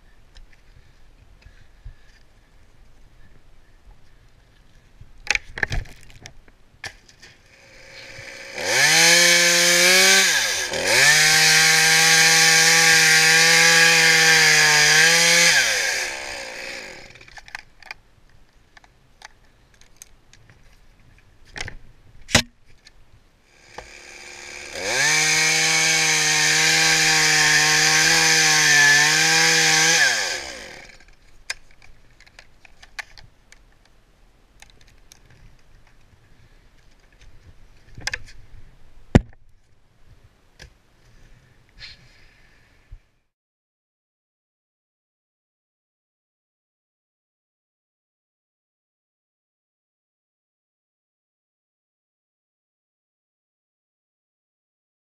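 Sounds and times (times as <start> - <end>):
chainsaw cutting wood: 7.4 - 17.6, 23.5 - 31.2.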